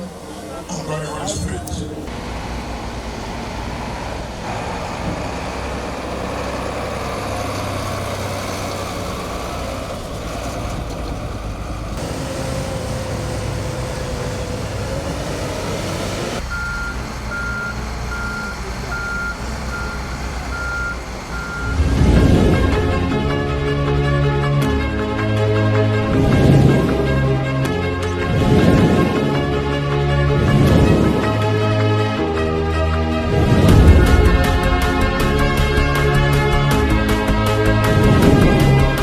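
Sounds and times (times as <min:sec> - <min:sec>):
heavy vehicle engines running: 0:00.0 - 0:39.0
reversing alarm beeping: 0:14.6 - 0:22.8.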